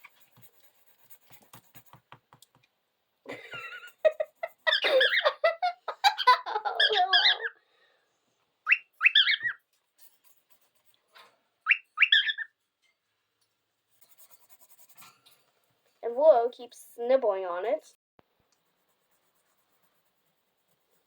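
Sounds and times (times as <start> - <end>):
cockatiel chattering: 4.6 - 5.3, 6.0 - 7.5, 8.7 - 9.6, 11.7 - 12.5
cockatiel whistled calls: 8.6 - 9.6, 11.7 - 12.5.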